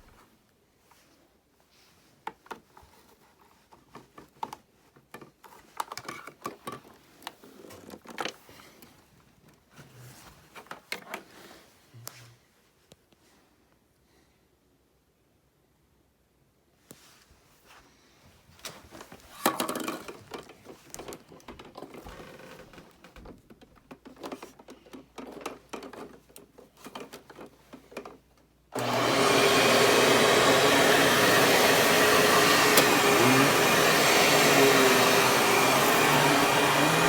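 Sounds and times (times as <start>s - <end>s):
clicks and knocks of handling: 2.2s - 9.6s, 18.6s - 28.5s
vacuum cleaner motor whine: 28.8s - 37.0s.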